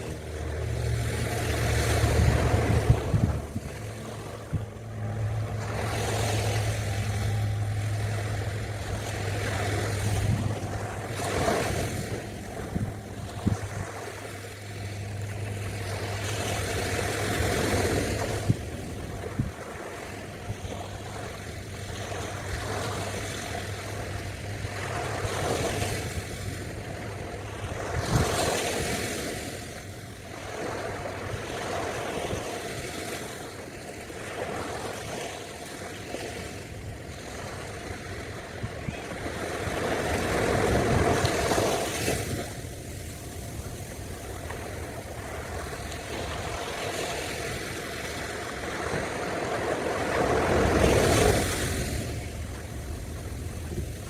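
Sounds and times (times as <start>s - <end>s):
steady low hum: 0.0s - 32.2s
ocean surf washing on beach: 0.0s - 54.0s.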